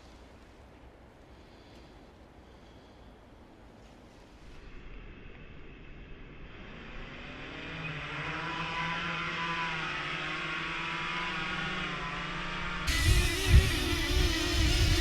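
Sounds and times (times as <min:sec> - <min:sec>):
drone propellers whirring: 0:06.4 - 0:15.0.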